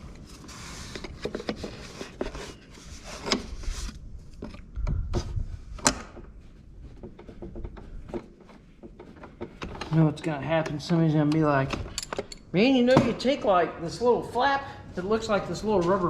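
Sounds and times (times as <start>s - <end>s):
metal tools clicking and knocking: 10.6s - 12.5s.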